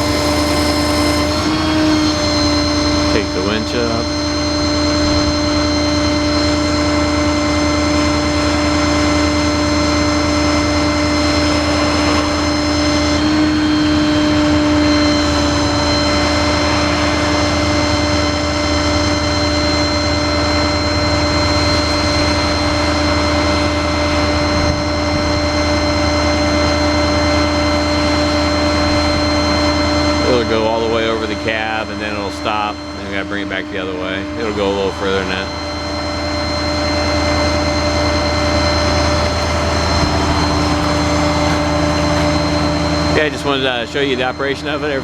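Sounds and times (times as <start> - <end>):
hydraulic crane whine: 0.0 - 45.0
truck engine drone: 0.0 - 45.0.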